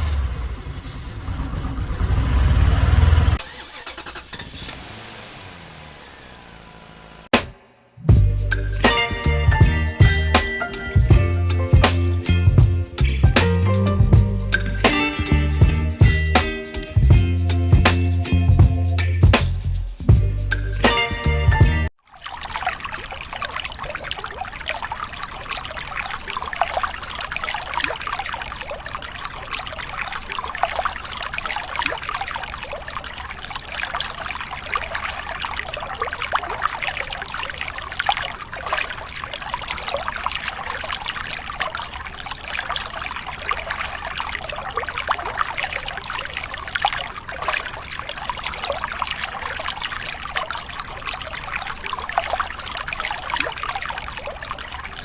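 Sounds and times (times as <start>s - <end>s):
water trickling: 8.4s - 17.1s, 21.9s - 55.0s.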